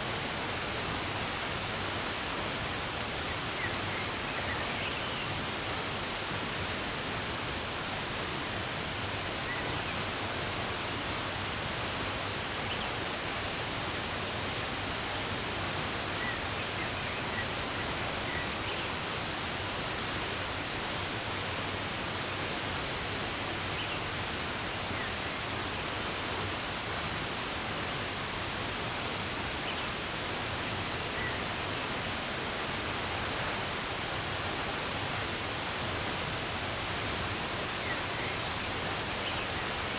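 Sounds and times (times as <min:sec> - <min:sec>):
running water: 0:00.0 - 0:16.6.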